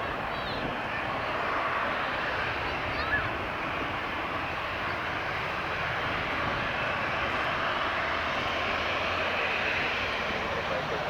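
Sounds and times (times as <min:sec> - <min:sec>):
airliner engines running: 0:00.0 - 0:11.0.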